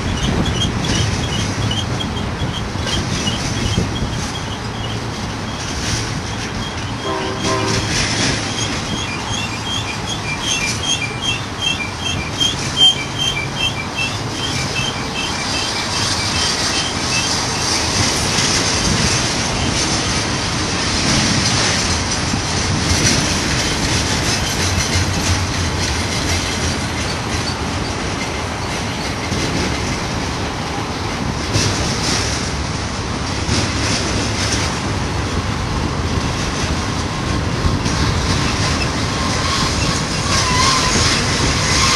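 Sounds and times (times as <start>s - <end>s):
wheel squeals: 0.0s - 19.9s, 22.8s - 29.4s, 38.3s - 41.9s
freight train rumbling past: 0.0s - 41.9s.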